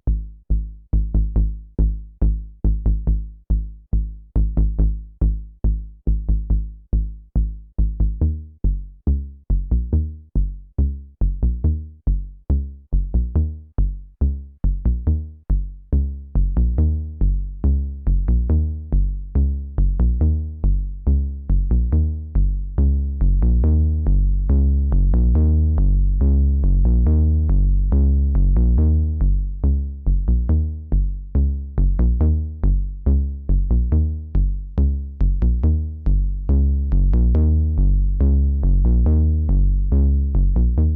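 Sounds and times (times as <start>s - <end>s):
sustained synth bass line: 0.0s - 40.9s
synthesizer kick drum pattern: 14.7s - 40.9s.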